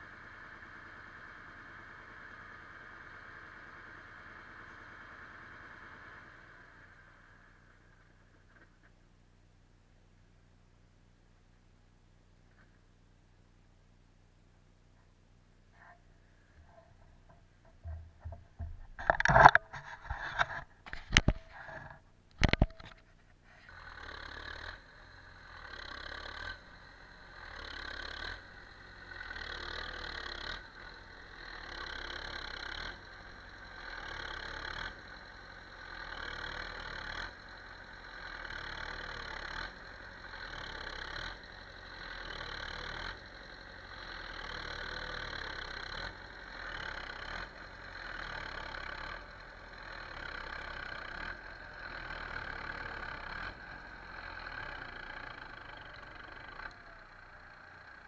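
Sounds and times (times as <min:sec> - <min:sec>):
motor running: 0:16.5 - 0:23.0.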